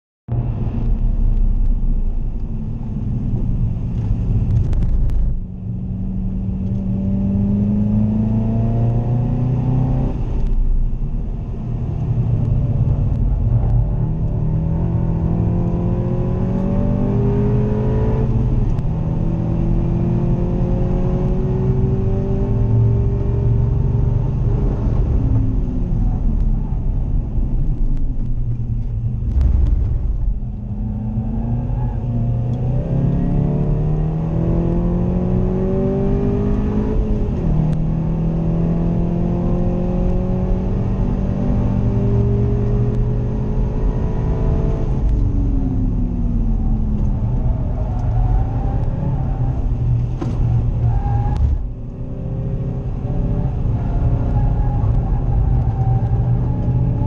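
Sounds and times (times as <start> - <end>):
car engine at full throttle: 0.3 - 57.0
tyre and road noise: 0.3 - 57.0.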